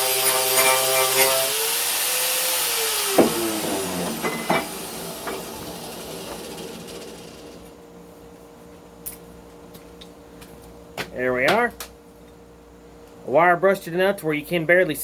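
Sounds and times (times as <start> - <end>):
wire brush wheel scrubbing steel: 0.0 - 7.6.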